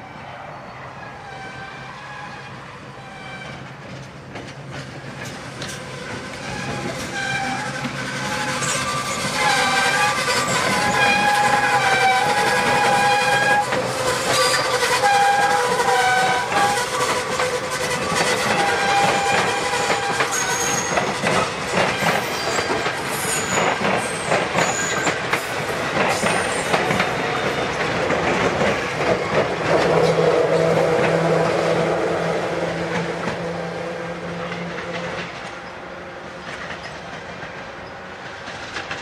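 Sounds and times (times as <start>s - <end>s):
steady train hum: 0.0s - 39.0s
wheels clicking over rail joints: 3.6s - 31.2s, 36.4s - 39.0s.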